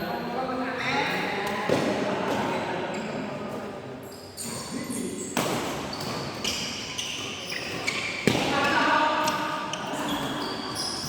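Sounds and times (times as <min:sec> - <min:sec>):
racket hitting shuttlecock: 0:05.3 - 0:09.5.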